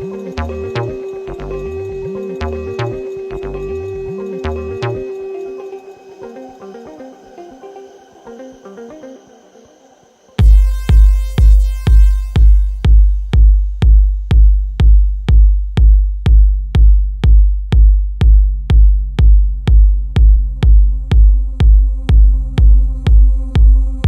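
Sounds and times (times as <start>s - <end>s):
electronic kick drum beat: 0.0s - 5.6s, 10.4s - 24.0s
held synth tones: 0.0s - 14.5s.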